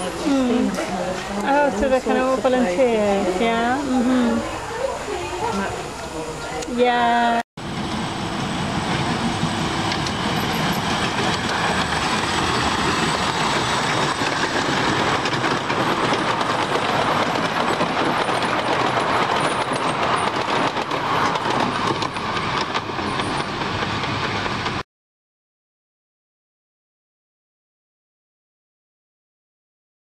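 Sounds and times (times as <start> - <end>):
train wheels on rail: 7.6 - 24.8.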